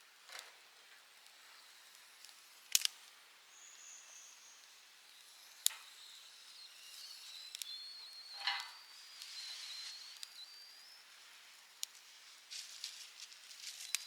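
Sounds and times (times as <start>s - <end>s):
wood fire crackling and popping: 0.2s - 3.2s, 7.2s - 14.0s
high wavering whistle: 3.6s - 11.1s.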